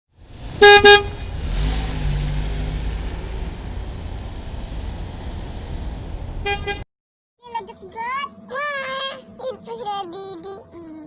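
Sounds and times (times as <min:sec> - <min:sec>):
vehicle engine rumbling: 0:00.1 - 0:06.8
vehicle horn honks: 0:00.6 - 0:01.2, 0:06.4 - 0:06.8.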